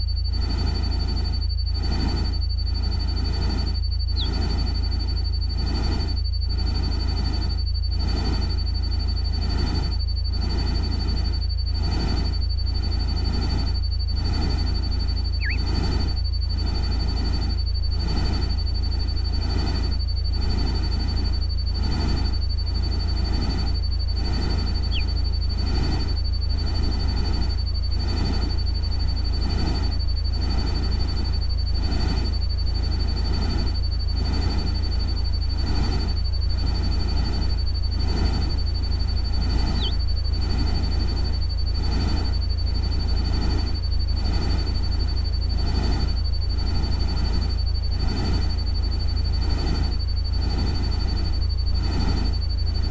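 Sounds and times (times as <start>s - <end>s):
high synthetic whine: 14.6s - 16.1s, 23.6s - 26.2s, 38.9s - 40.7s
brief chirps: 15.4s - 15.7s, 24.8s - 25.2s.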